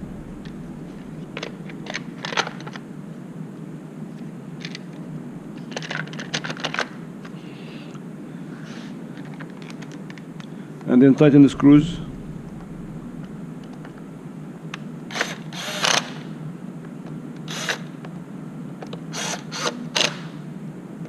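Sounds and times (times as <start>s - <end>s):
steady low hum: 0.0s - 5.9s, 10.6s - 15.4s.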